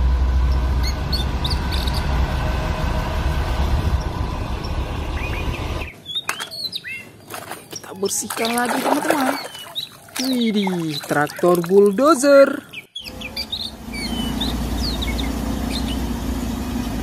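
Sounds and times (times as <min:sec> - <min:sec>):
low steady rumble: 0:00.0 - 0:05.9
small birds chirping: 0:00.8 - 0:02.1, 0:04.5 - 0:17.0.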